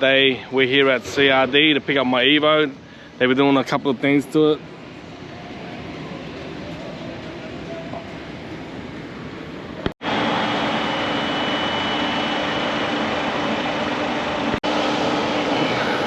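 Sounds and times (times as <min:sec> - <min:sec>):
machine humming with high whine: 0:00.0 - 0:16.0.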